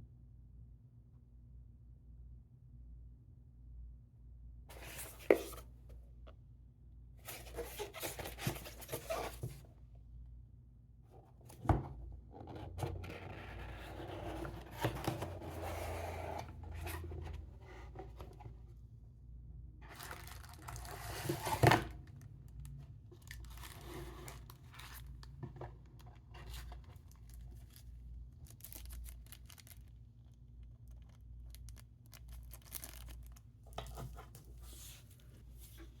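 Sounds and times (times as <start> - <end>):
cardboard scraping and rubbing: 4.7 - 5.7, 7.3 - 9.6, 12.4 - 18.5.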